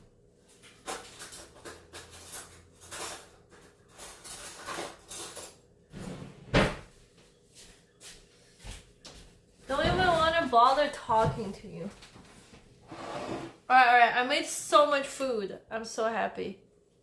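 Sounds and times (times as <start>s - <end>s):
cupboard doors and dishes clattering: 0.8s - 6.9s, 9.7s - 10.5s.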